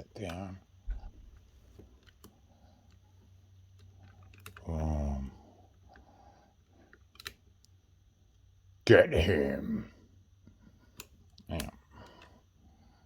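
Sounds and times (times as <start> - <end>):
person grunting: 9.0 - 10.0.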